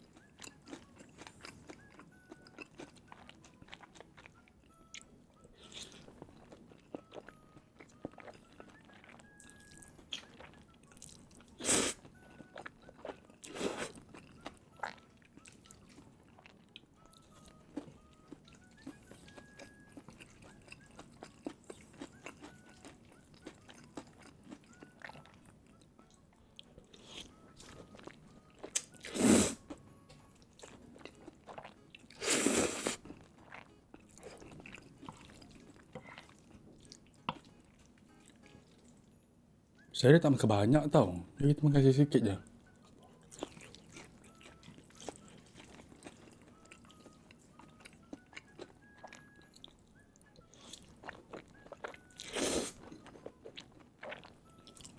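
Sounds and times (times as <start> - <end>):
chewing with wet mouth clicks: 0.0 - 32.2, 32.9 - 39.0, 42.4 - 54.9.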